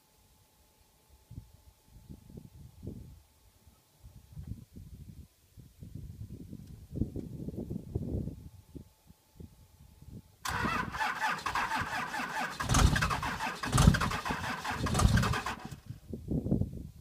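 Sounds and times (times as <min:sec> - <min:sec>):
starter motor cranking: 0:10.5 - 0:15.8
diesel engine firing thuds: 0:10.5 - 0:15.9.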